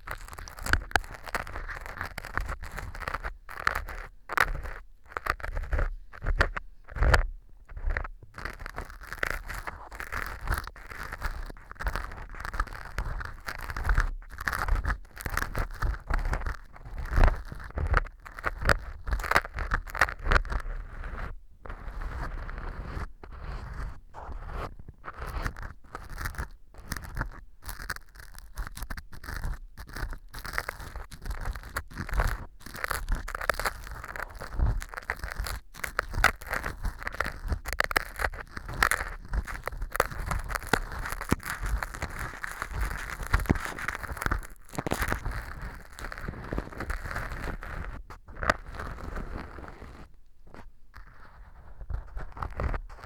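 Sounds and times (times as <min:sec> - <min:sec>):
ear cleaning tool scraping: 0:30.0 - 0:53.0.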